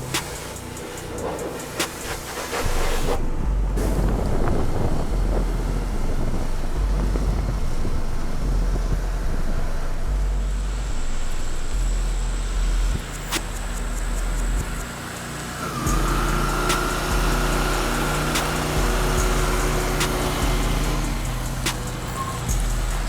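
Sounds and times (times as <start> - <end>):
pressure washer spray hissing: 0.0 - 8.5, 9.5 - 23.0
deep bass note: 2.7 - 14.8.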